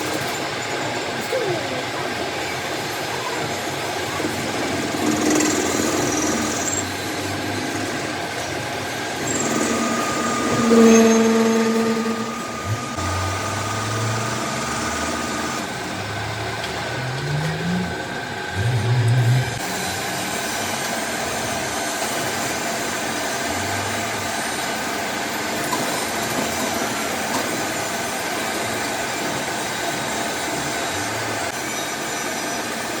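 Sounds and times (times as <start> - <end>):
motorised machinery running: 0.0 - 33.0
rising tone: 9.2 - 20.8.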